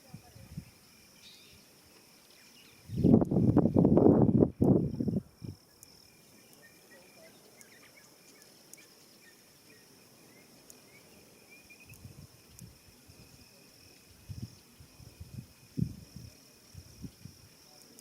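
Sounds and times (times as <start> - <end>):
crickets trilling: 0.0 - 18.0
soft bird chirps: 0.6 - 3.4, 5.0 - 12.6.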